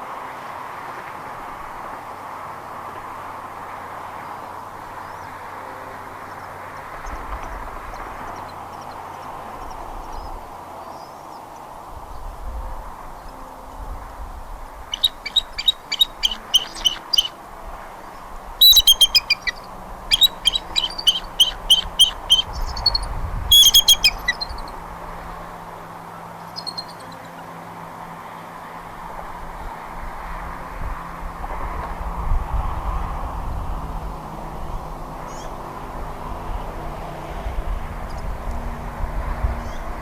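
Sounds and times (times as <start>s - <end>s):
background hiss: 0.0s - 29.3s
eagle chirping calls: 14.9s - 17.4s, 18.6s - 24.7s, 26.6s - 27.2s.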